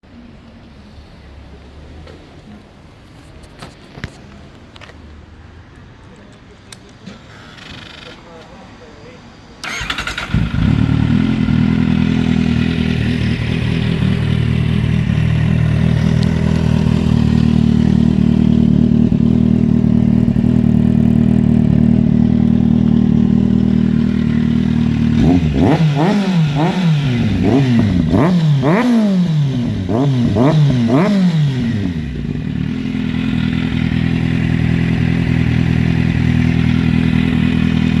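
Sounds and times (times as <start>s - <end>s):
quick throttle blips: 9.6s - 13.6s
motorcycle engine idling: 9.6s - 38.0s.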